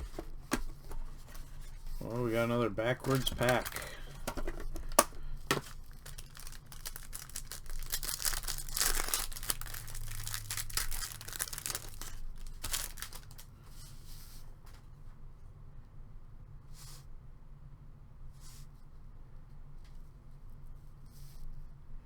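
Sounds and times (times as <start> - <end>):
plastic wrapper tearing and crinkling: 0.0 - 13.5.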